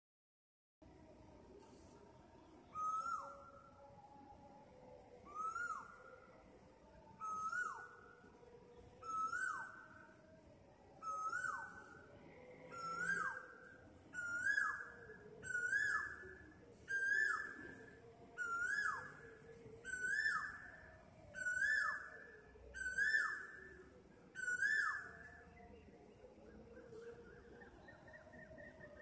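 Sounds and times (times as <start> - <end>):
bird whistled calls: 2.7 - 3.7, 5.2 - 6.1, 7.2 - 8.0, 9.0 - 9.9, 11.0 - 12.0, 12.7 - 25.7, 26.9 - 29.0.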